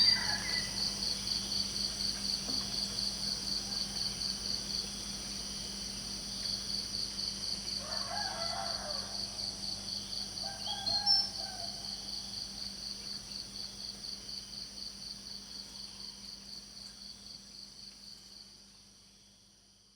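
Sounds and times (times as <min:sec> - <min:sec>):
distant rooster crowing: 0:00.0 - 0:01.1, 0:07.8 - 0:12.1
crickets chirping: 0:00.0 - 0:19.9.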